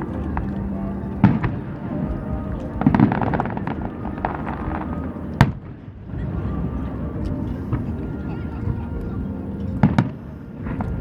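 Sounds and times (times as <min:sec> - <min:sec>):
fireworks crackling pops: 0:00.3 - 0:06.3.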